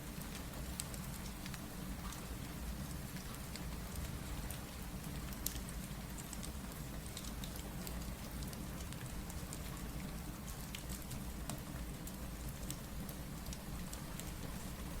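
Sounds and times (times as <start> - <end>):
small sharp ticks and pops: 5.3 - 9.8.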